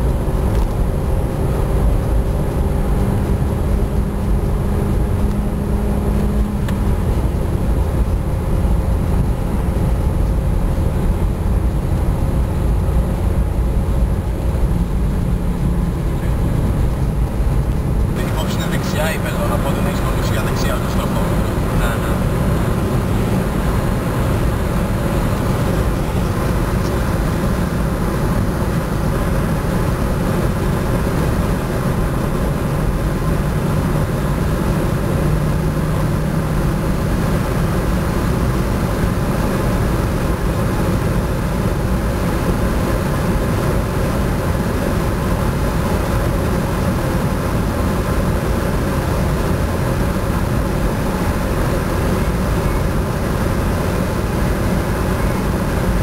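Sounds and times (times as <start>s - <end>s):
car engine droning at high revs: 0.0s - 56.0s
rushing wind noise: 0.0s - 56.0s.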